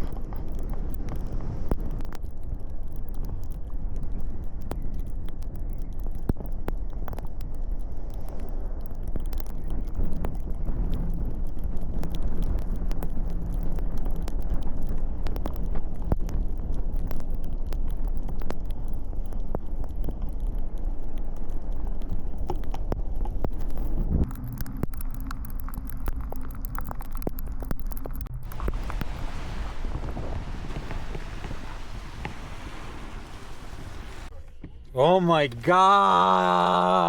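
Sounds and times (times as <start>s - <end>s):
sharp ticks: 0.0s - 28.4s
tyre rumble on icy road: 0.0s - 34.3s.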